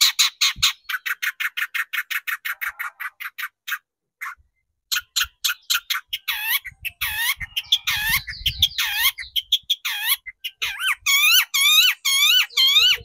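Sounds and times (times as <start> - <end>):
bird calling harsh notes: 0.0 - 13.0.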